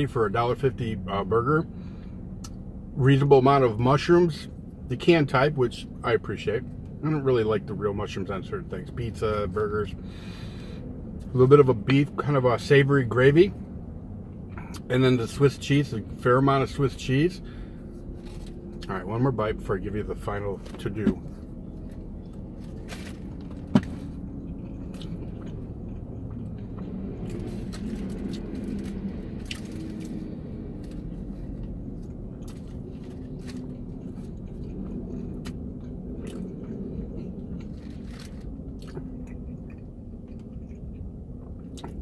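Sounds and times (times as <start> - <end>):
low rumble: 16.0 - 42.0
man chewing wetly: 21.3 - 42.0.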